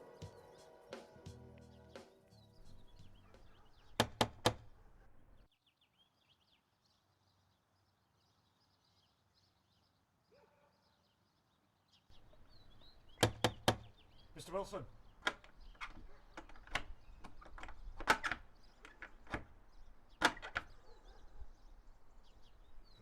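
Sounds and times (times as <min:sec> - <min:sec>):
faint birdsong: 0:00.0 - 0:23.0
sharp knocks on a door: 0:02.7 - 0:05.5, 0:12.2 - 0:23.0.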